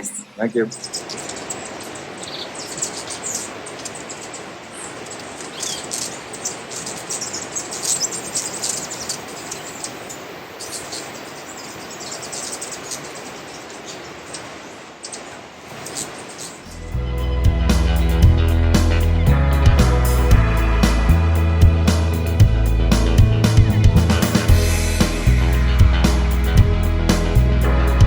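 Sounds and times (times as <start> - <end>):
steady background hiss: 0.0 - 17.0
birds chirping: 0.0 - 28.0.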